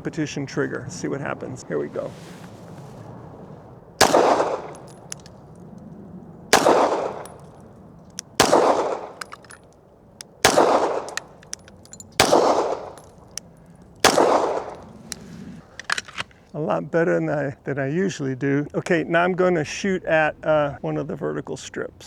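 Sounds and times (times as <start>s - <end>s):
pistol shots with ringing tail: 4.0s - 5.7s, 6.3s - 15.2s.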